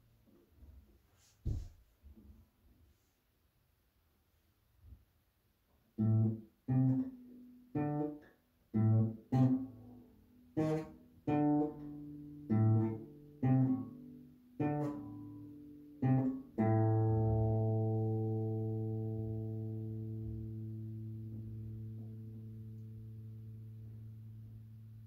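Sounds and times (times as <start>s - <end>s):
guitar notes plucked slowly: 6.0s - 25.0s.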